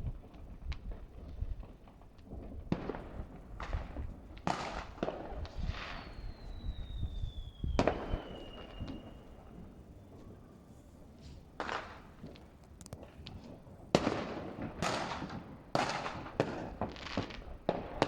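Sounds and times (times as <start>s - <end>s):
distant fireworks bangs and crackles: 0.0s - 18.0s
firework whistle sliding down: 5.8s - 10.3s.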